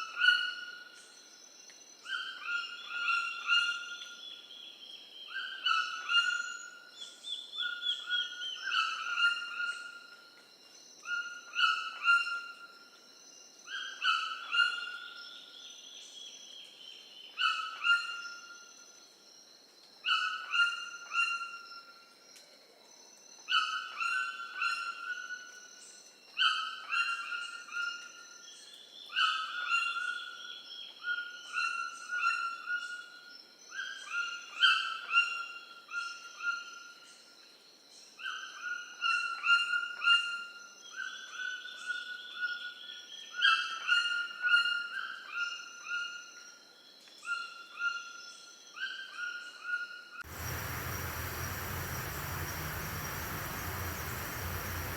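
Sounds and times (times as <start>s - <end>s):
bird calling: 50.3s - 54.9s.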